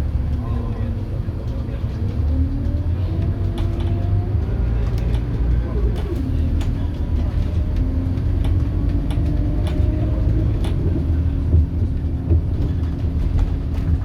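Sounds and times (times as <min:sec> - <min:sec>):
bus diesel engine rumble: 0:00.0 - 0:14.0
light rattles and clicks: 0:00.3 - 0:14.0.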